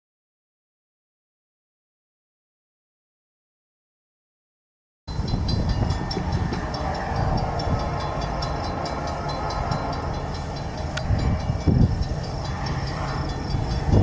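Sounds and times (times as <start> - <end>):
high squealing tones: 5.1 - 14.0
rapid wheel clicking: 5.1 - 14.0
train wheels rumbling on rail: 5.1 - 14.0.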